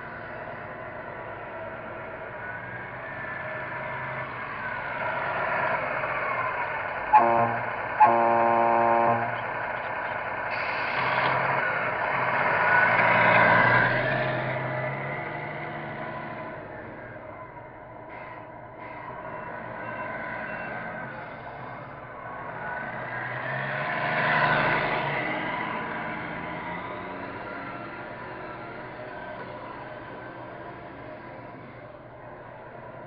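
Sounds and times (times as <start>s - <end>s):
simulated truck diesel engine: 0.0s - 33.0s
truck horn blasts: 7.1s - 9.5s.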